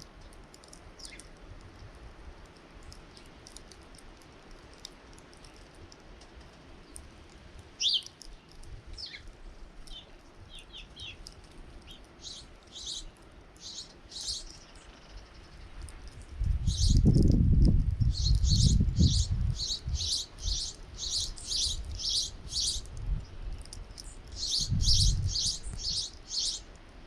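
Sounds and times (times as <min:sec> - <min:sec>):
small birds chirping: 0:00.0 - 0:01.4, 0:06.7 - 0:26.8.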